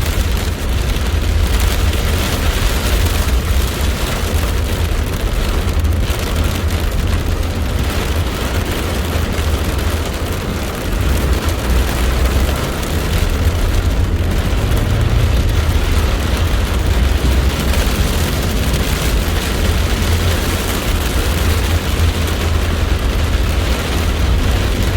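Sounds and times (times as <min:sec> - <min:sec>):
heavy rain: 0:00.0 - 0:24.9
deep thunder rumble: 0:10.9 - 0:24.9.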